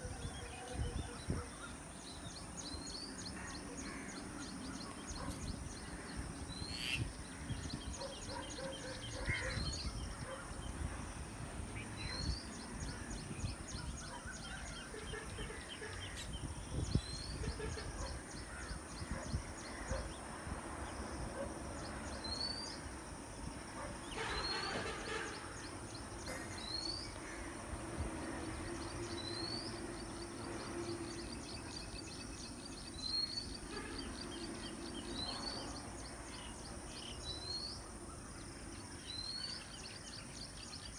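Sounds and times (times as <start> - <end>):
birds calling: 0.7 - 11.0.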